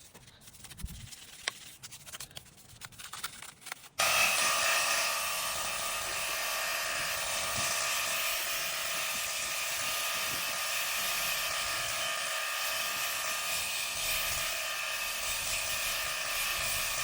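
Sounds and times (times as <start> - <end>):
small motor whining: 4.0 - 17.0.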